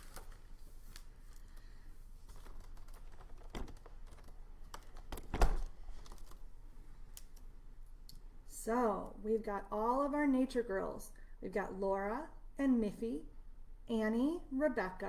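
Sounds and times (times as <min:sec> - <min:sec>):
typing on computer keyboard: 0:02.3 - 0:06.4.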